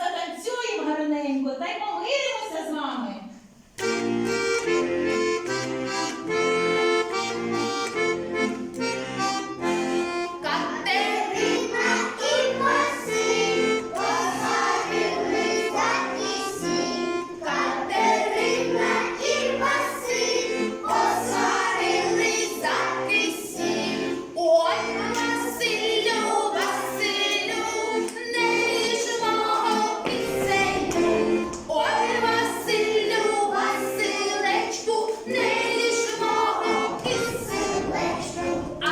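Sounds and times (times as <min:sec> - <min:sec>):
accordion playing folk tune: 0:03.8 - 0:38.9
group of voices singing: 0:09.6 - 0:38.9.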